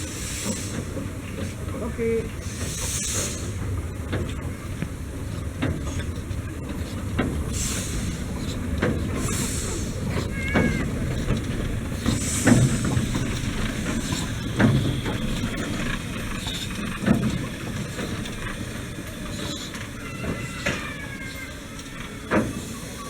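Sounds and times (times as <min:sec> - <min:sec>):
small steam train running: 0:00.0 - 0:23.0
sharp knock of train: 0:08.8 - 0:18.6.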